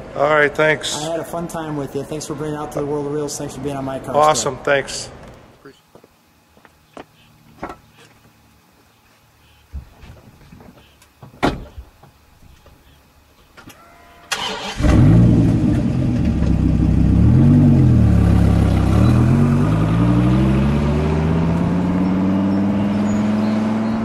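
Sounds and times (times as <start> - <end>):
car engine starting and accelerating: 14.3 - 24.0.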